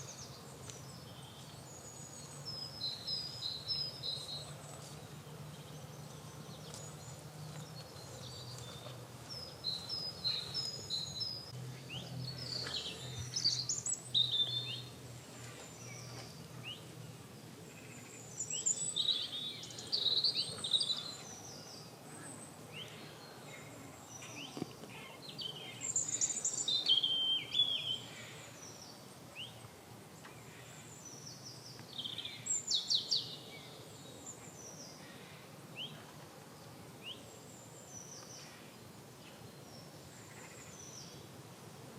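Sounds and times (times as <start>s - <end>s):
garden birds singing and calling: 0.0s - 41.9s.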